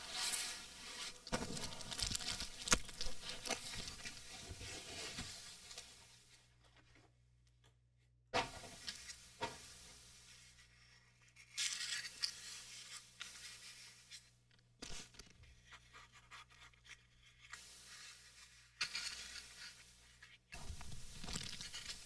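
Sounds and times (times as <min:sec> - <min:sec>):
packaging rustling and scraping: 0:00.0 - 0:07.0, 0:18.0 - 0:22.0.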